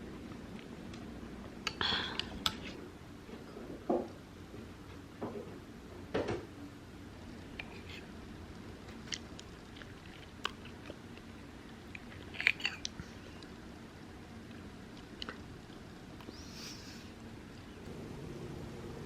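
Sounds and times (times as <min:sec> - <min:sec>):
person chewing: 0:08.8 - 0:13.5.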